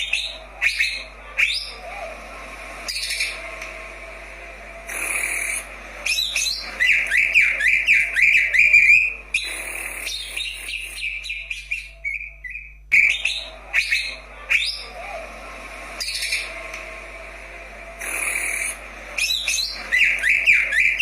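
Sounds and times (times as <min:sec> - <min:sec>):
sharp bird calls: 0:00.0 - 0:02.0, 0:04.9 - 0:15.2, 0:18.0 - 0:21.0
bird singing whistled notes: 0:05.1 - 0:14.8.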